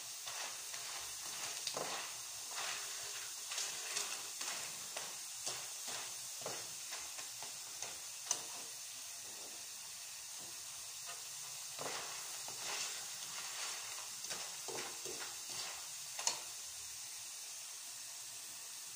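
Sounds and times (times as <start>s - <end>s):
metal spatula scraping a wok: 0.0s - 9.6s, 11.0s - 16.5s
bananas sizzling in hot oil: 0.0s - 18.9s.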